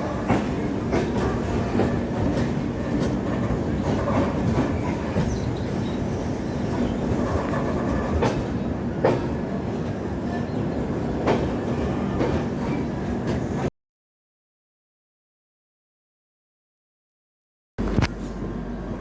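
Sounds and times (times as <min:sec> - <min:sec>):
train coaches rumbling: 0:00.0 - 0:13.7.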